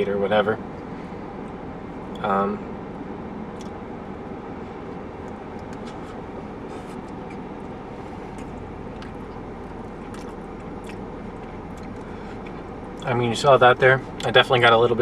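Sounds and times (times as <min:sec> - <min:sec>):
low background hum: 0:00.0 - 0:15.0
chewing and food handling clicks: 0:03.6 - 0:03.8, 0:05.2 - 0:06.1, 0:06.9 - 0:13.1.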